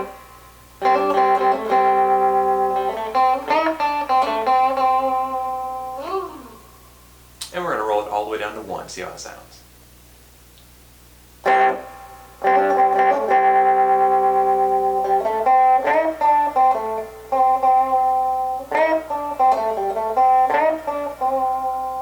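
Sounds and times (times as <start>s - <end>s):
clean electric guitar riff: 0.0s - 6.9s, 11.4s - 22.0s.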